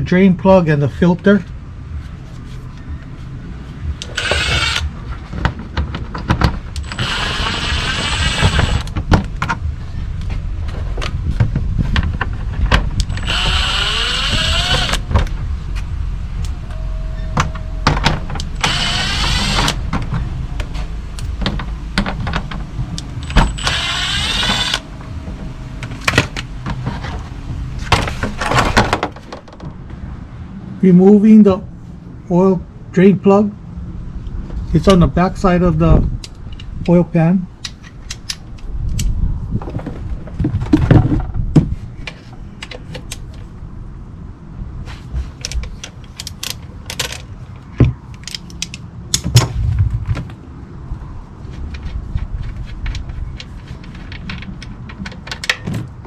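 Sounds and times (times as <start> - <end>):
impact wrench whirring: 4.0 - 4.9, 6.8 - 9.0, 13.0 - 15.1, 18.4 - 19.9, 23.0 - 24.9.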